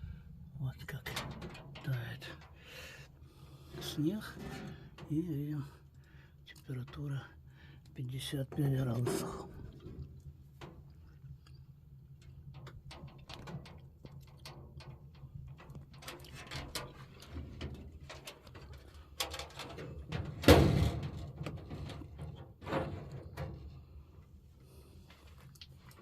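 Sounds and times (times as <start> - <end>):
small clicks and rustles: 0.9 - 2.6, 7.8 - 26.0.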